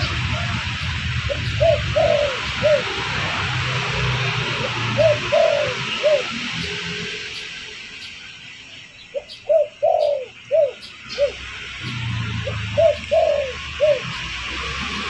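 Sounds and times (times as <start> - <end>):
dove cooing: 0.0 - 6.5, 9.1 - 11.4, 12.0 - 14.6
background hiss: 0.0 - 15.0.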